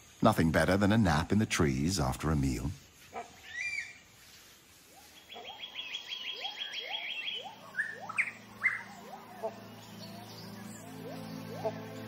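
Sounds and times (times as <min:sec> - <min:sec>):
birds calling high repeated notes: 0:03.2 - 0:12.0
short rising bird calls: 0:03.2 - 0:12.0.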